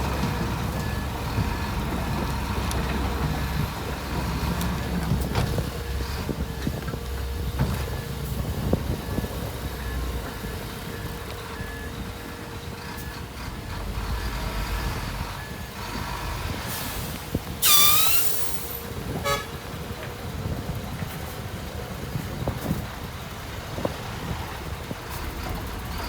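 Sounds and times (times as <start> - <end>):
diesel engine running: 0.0 - 26.0
reversing alarm beeping: 17.6 - 18.9
loud horn toot: 17.6 - 19.6.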